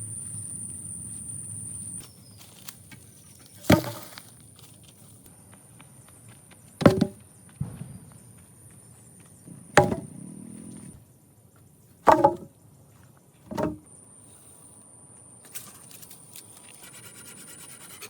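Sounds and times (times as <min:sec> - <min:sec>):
sharp knocks: 0:06.8 - 0:07.2, 0:09.8 - 0:10.2, 0:12.1 - 0:12.5, 0:13.5 - 0:13.8.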